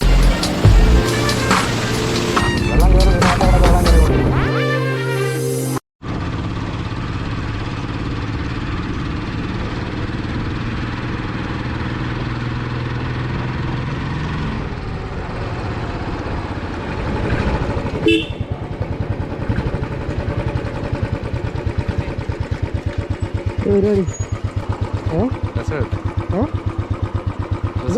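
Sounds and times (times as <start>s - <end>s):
vehicle engine idling: 17.6s - 27.9s
short horn toot: 18.0s - 18.5s.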